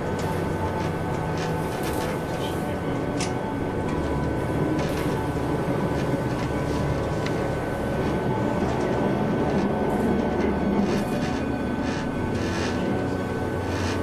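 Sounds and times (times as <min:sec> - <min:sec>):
train wheels rumbling on track: 0:00.0 - 0:14.0.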